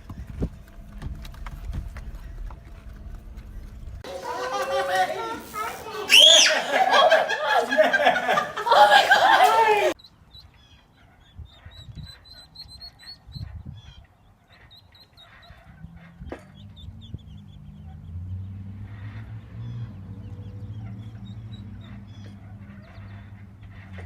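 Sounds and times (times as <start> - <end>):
low steady hum: 0.0 - 4.2
short high bird-like calls: 5.6 - 6.7.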